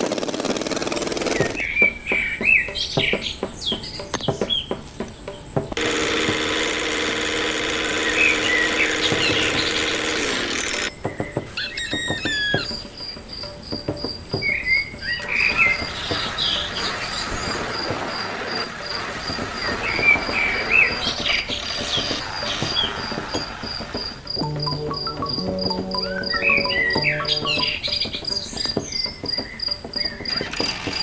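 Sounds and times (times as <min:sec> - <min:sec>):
insects trilling: 0:00.5 - 0:31.0
birds chirping: 0:00.6 - 0:31.0.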